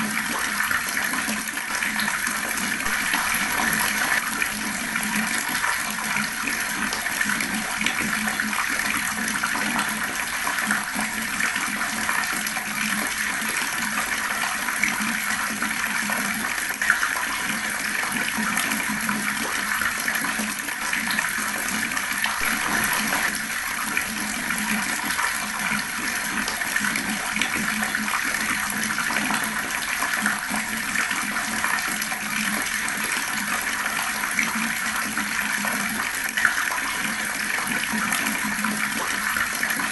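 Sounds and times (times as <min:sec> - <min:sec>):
fast-flowing water rushing: 0:02.2 - 0:16.1, 0:18.0 - 0:34.9.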